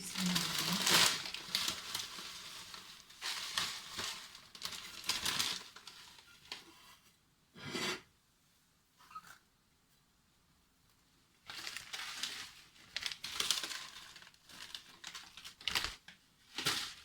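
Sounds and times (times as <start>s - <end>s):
plastic packaging crinkling: 0.0s - 6.8s, 11.4s - 17.0s.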